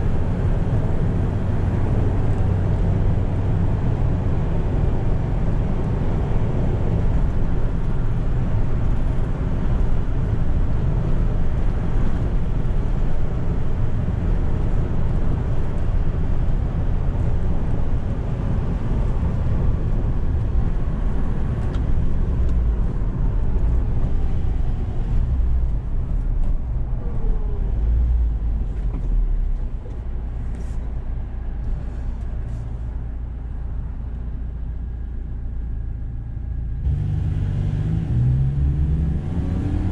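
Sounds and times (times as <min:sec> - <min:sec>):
road rumble: 0:00.0 - 0:39.9
truck engine while driving: 0:00.0 - 0:39.9.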